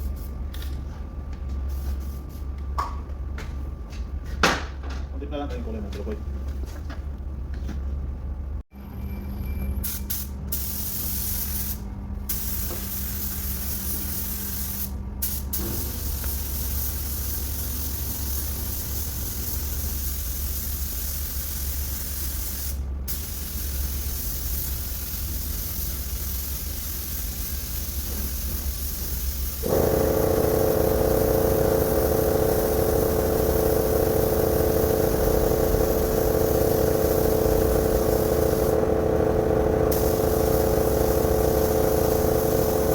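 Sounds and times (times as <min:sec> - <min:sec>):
spray gun hissing: 0:10.1 - 0:42.9
motor humming: 0:29.6 - 0:42.9.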